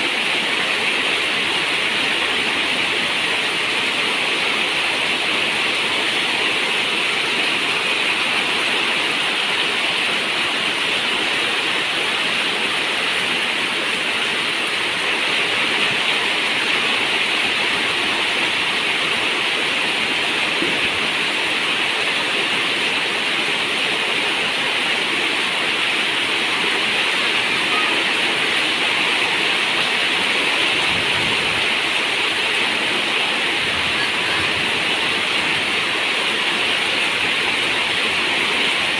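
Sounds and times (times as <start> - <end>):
rain on a metal roof: 0.0 - 38.9.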